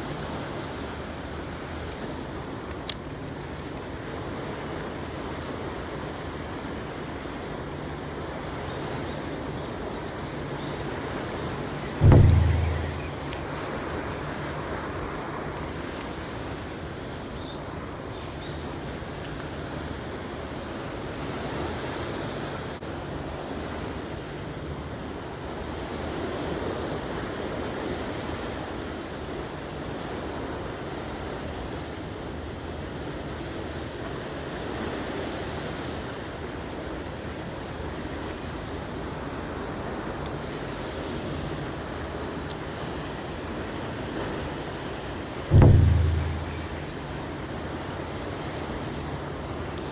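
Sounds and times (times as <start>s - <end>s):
low steady hum: 12.0s - 13.5s, 45.5s - 47.2s.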